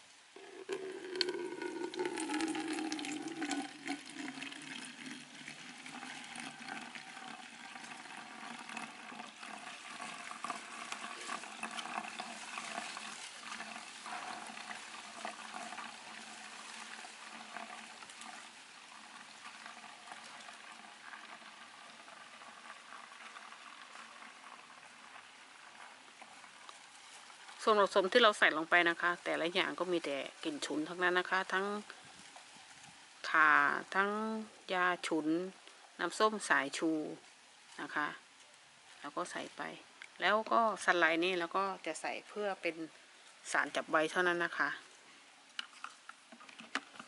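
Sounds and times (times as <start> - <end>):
liquid poured into plastic bottle: 0.4 - 34.0, 45.5 - 47.0.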